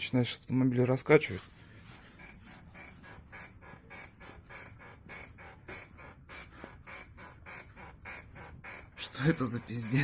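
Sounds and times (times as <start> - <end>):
brake cable squeaking: 6.7 - 10.0.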